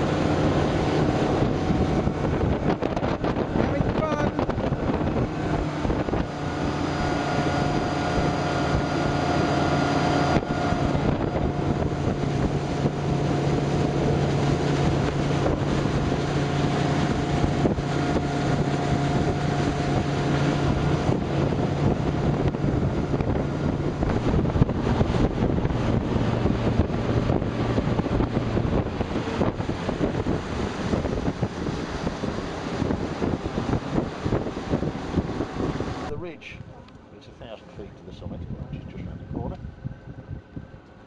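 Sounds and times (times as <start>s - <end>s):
boat engine humming: 0.0s - 41.0s
wind buffeting microphone: 0.0s - 41.0s.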